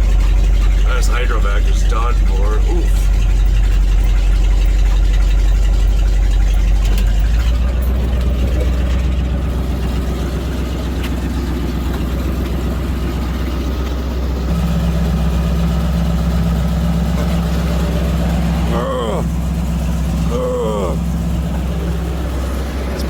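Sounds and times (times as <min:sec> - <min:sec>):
engine idling: 0:00.0 - 0:23.0
higher steady hum: 0:14.5 - 0:23.0.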